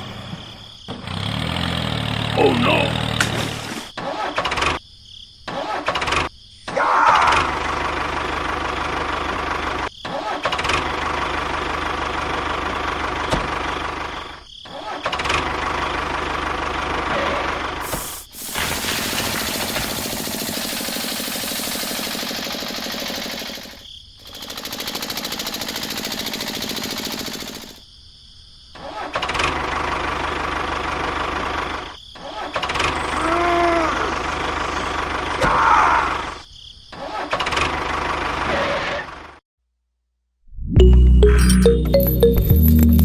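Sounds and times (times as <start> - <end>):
tractor engine knocking: 18.8 - 23.8, 24.4 - 27.8.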